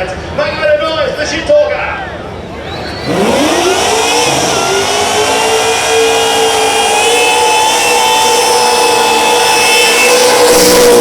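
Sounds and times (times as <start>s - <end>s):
car engine revving high: 2.6s - 11.0s.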